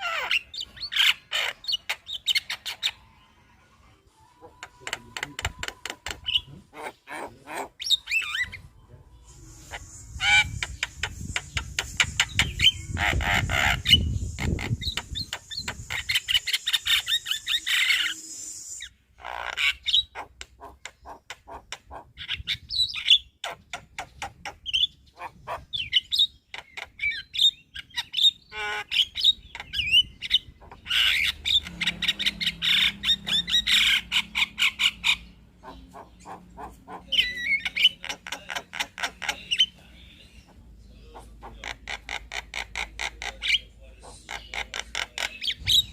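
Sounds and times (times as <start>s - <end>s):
myna chattering song: 30.6s - 45.9s.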